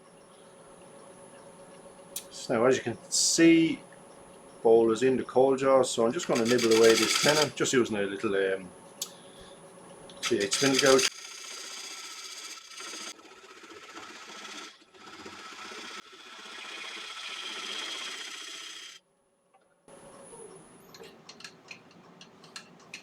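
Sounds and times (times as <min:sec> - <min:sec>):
gouge scraping wood on lathe: 0:06.2 - 0:07.5, 0:10.2 - 0:19.0.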